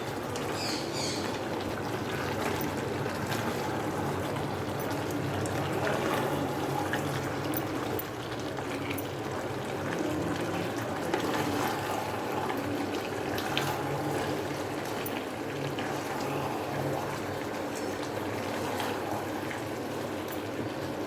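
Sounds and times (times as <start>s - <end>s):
curry bubbling and sizzling in a pot: 8.1s - 21.0s.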